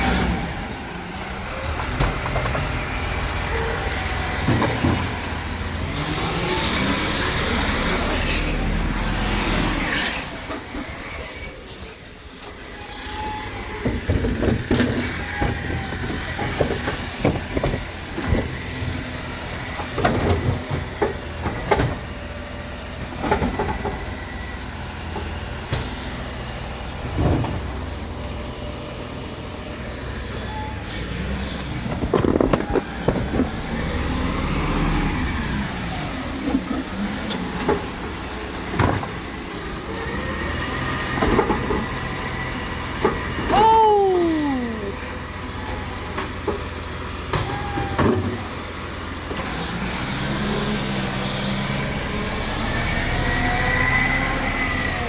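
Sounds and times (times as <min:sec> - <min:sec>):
rubbish truck engine running: 0:00.0 - 0:55.0
bins knocking and banging: 0:38.7 - 0:39.2.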